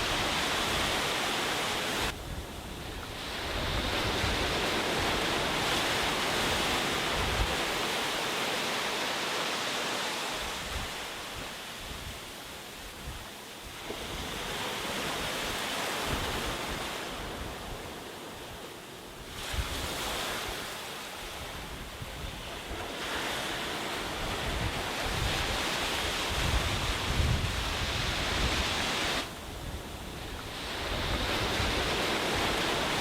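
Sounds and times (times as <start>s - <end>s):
wind buffeting microphone: 0.0s - 8.0s, 21.3s - 33.0s
sea waves breaking on beach: 0.0s - 33.0s.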